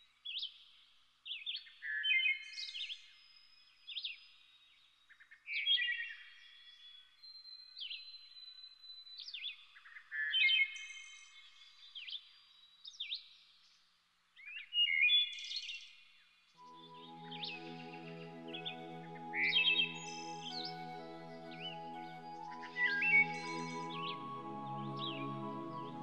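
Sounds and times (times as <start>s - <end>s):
songbirds singing: 16.7s - 26.0s.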